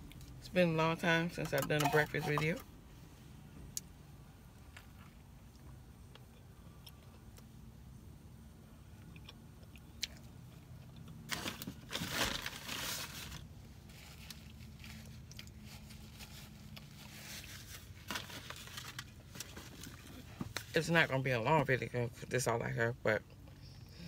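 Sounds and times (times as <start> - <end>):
person chewing crispy food: 14.1 - 18.0.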